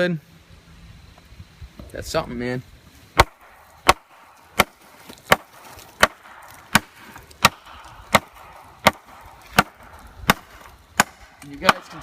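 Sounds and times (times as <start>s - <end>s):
knife chopping wood: 3.2s - 12.0s.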